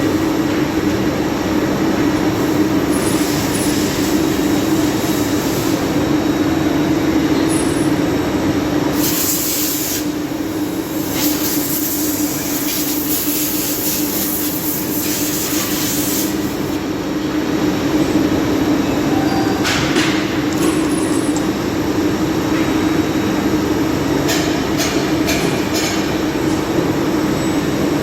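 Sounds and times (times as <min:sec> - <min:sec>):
mechanical hum: 0:00.0 - 0:28.0.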